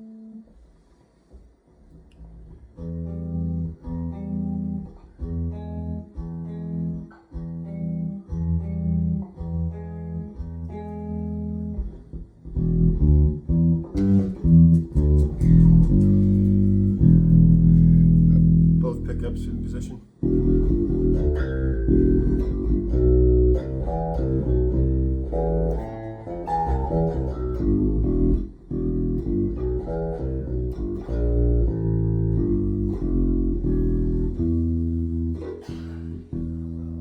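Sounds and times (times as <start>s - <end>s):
electric bass plucked notes: 2.2s - 37.0s.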